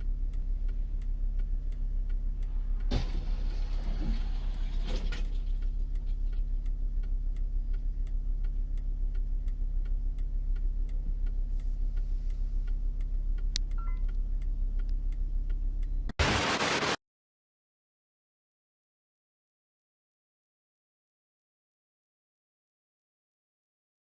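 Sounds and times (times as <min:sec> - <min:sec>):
regular ticking: 0:00.0 - 0:03.9, 0:05.2 - 0:16.2
car engine and road noise: 0:00.0 - 0:17.0
loud burst of noise: 0:16.2 - 0:17.0.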